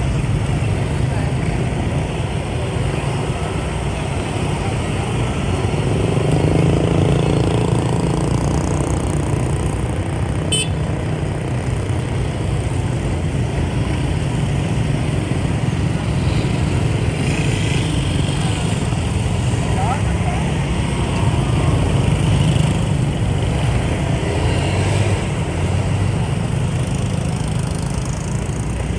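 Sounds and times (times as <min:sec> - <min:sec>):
motorcycle traffic drone: 0:00.0 - 0:28.9.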